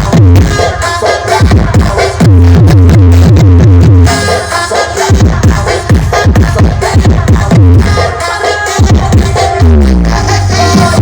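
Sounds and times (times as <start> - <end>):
heavy bass kicks: 0.0 - 0.6, 1.4 - 4.1, 5.1 - 8.0, 8.8 - 11.0
electronic dance music: 0.0 - 11.0.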